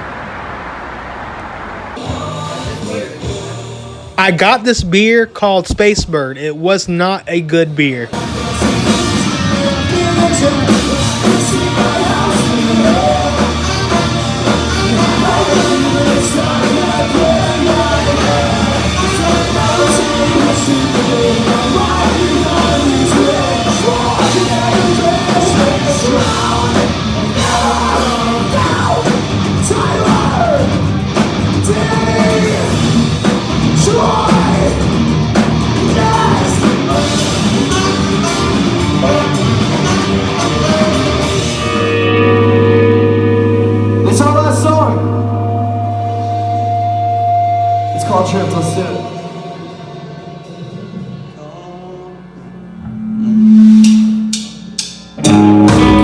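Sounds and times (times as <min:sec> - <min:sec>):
live pop-punk band playing: 0:02.0 - 0:04.4, 0:08.1 - 0:51.4, 0:52.8 - 0:56.0
person shouting and singing: 0:07.7 - 0:31.0, 0:31.6 - 0:32.9, 0:33.7 - 0:35.0, 0:35.7 - 0:41.9.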